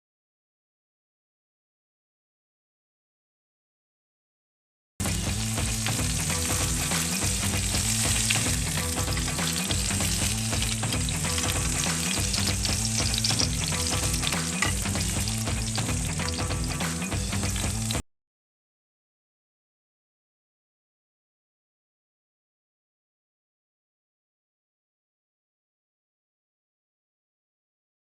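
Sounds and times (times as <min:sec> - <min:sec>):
meat patties sizzling on griddle: 0:05.0 - 0:18.0.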